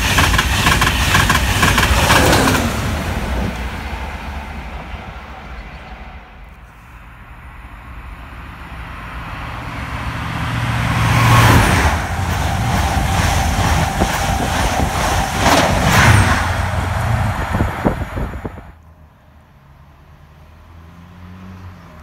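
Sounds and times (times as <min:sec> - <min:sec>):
wheels clicking over rail joints: 0:00.0 - 0:03.5
roar of wheels and air: 0:00.0 - 0:18.8
train passing at speed: 0:00.0 - 0:18.8.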